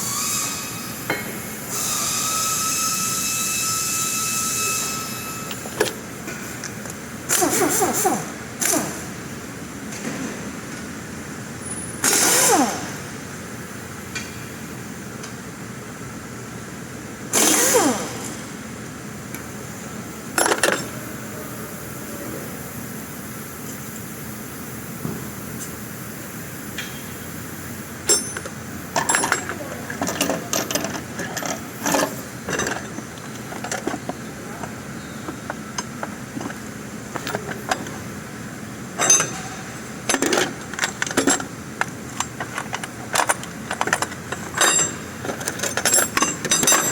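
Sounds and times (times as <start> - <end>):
pneumatic impact wrench bursts: 0.0 - 6.0, 7.2 - 9.2, 11.6 - 13.2, 17.3 - 18.6
steady background noise: 0.0 - 46.9
metal parts clattering: 20.4 - 20.9, 28.1 - 34.7, 35.4 - 38.0, 39.0 - 46.9
metal tools clinking: 20.4 - 21.0, 28.1 - 38.0, 39.0 - 46.9.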